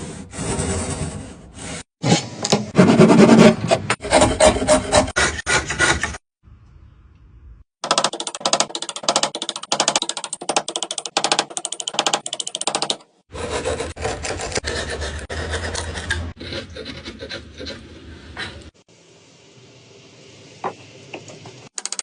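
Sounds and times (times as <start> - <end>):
hand tool rasping on wood: 2.8 - 6.2, 13.3 - 17.9.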